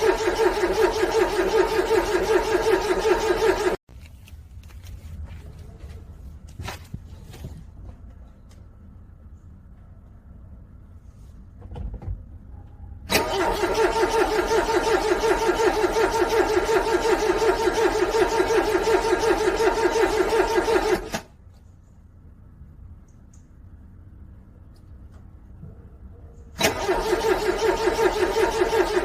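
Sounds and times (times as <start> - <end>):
car engine cranking on starter: 0.0 - 3.8, 13.1 - 21.3, 26.6 - 29.0.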